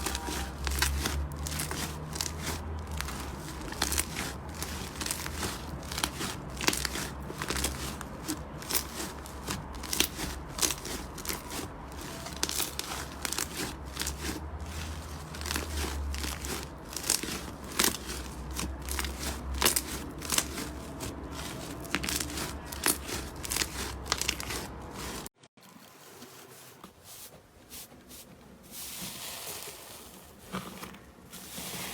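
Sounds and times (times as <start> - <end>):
slime crackling and crunching: 0.0 - 25.4.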